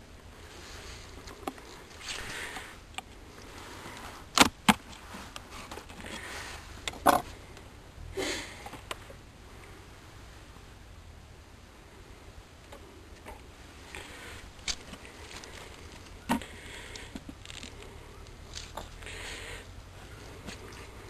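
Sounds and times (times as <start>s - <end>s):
soft rustling: 0.3s - 7.6s, 12.7s - 21.0s.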